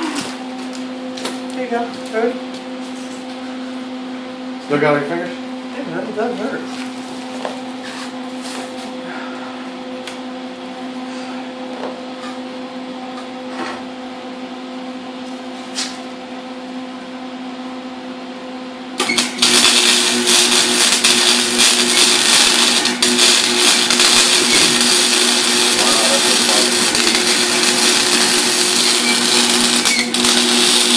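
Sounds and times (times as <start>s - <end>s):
steady electrical hum: 0.0s - 30.9s
welding arc crackling hiss: 19.0s - 30.9s.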